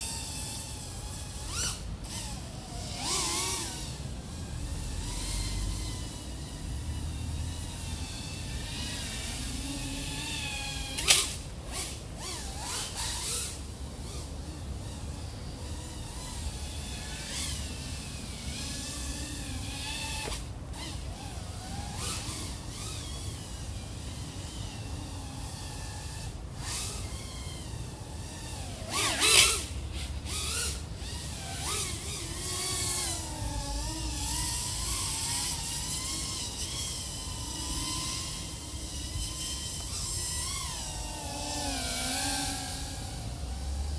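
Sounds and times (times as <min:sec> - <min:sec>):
drone motors whining: 0:00.0 - 0:43.9.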